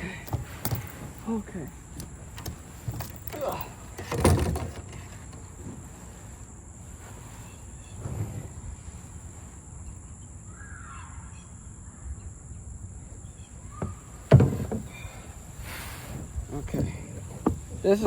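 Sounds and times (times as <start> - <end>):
handling sounds in a kayak: 0.0 - 9.7, 13.3 - 18.0
bird call: 10.5 - 12.3
dull knock: 13.8 - 15.0.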